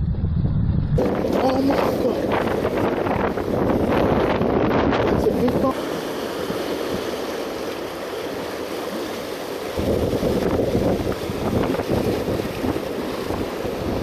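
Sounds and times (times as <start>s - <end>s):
wind buffeting microphone: 0.0s - 14.0s
sea waves washing: 1.0s - 14.0s.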